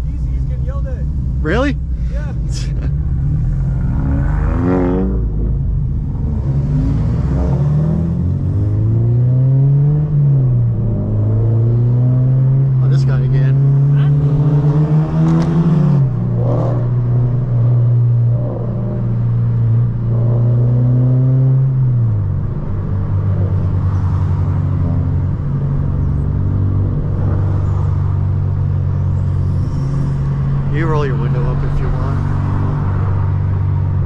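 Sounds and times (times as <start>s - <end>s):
car engine droning in cabin: 0.0s - 34.0s.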